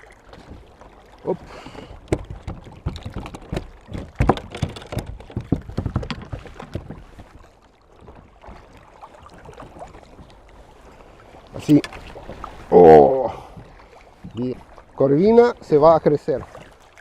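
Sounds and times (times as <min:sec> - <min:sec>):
knocks and taps on kayak hull: 0:00.3 - 0:10.6.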